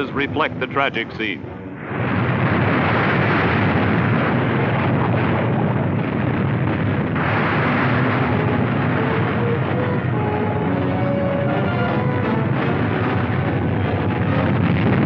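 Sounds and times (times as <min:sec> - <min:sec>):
volcano eruption rumbling: 0:00.0 - 0:15.0
crashing debris: 0:02.1 - 0:10.6.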